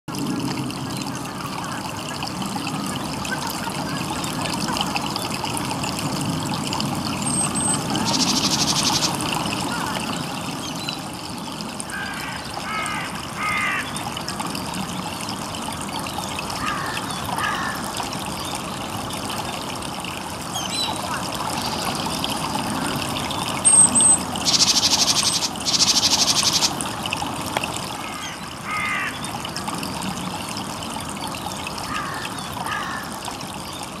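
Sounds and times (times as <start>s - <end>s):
small songbirds chirping: 7.2s - 9.3s, 23.4s - 26.8s.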